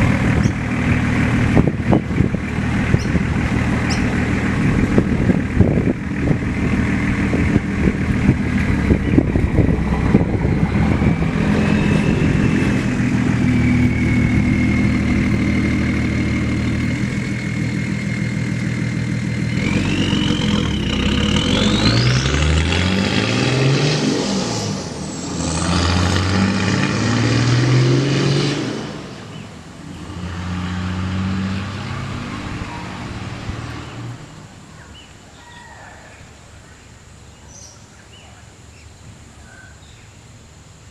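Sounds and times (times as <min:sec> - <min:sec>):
diesel engine idling and revving: 0:00.0 - 0:35.2
turbo whistle: 0:11.5 - 0:12.8.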